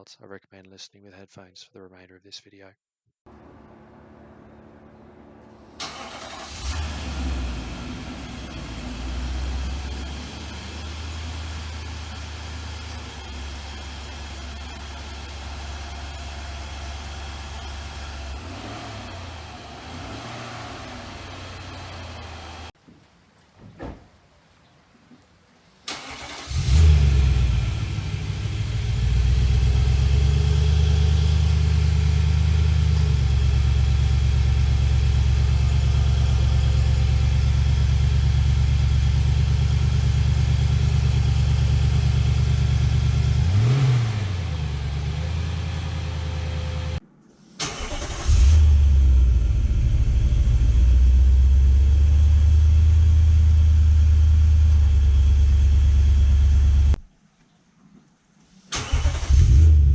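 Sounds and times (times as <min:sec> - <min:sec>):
engine idling: 0:03.3 - 0:22.7, 0:25.9 - 0:47.0, 0:47.8 - 0:57.0
engine cold start: 0:05.4 - 0:13.3, 0:25.9 - 0:28.7, 0:47.6 - 0:50.0, 0:58.7 - 0:59.9.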